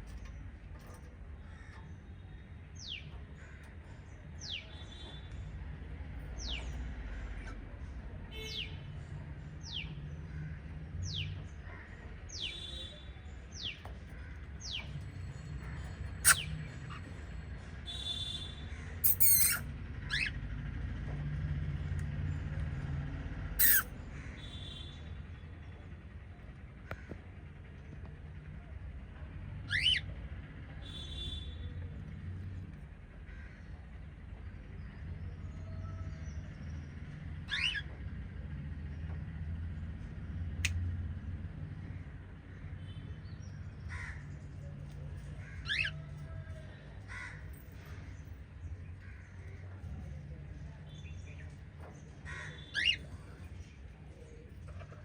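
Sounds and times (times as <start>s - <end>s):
cockatiels and budgerigars calling: 15.9s - 17.2s, 19.0s - 20.4s, 23.6s - 23.9s, 29.6s - 30.1s, 37.4s - 38.0s, 45.2s - 46.3s, 52.2s - 53.6s.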